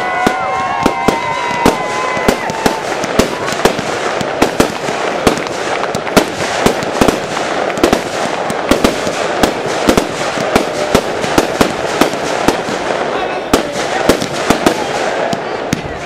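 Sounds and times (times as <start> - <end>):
fireworks bangs: 0.0 - 16.0
fireworks hiss and crackle: 0.0 - 16.0.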